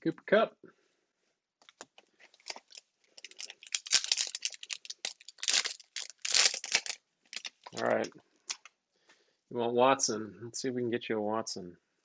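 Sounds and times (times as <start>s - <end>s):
wrapper tearing and crinkling: 1.6s - 8.7s.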